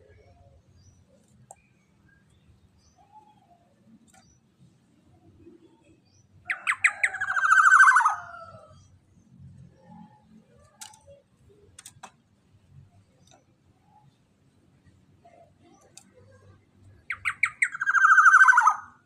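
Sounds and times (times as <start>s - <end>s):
faint clicks: 3.9s - 4.4s, 9.8s - 14.1s, 15.6s - 17.0s.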